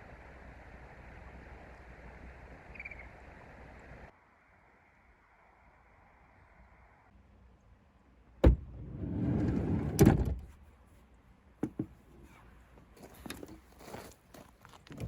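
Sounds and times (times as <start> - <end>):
sliding door running along track: 8.4 - 10.4
door stopping with a thunk: 8.4 - 10.5.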